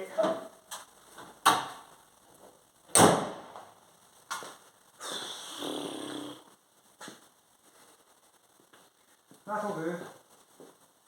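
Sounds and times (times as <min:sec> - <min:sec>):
rough breathy sound: 0:05.0 - 0:06.5.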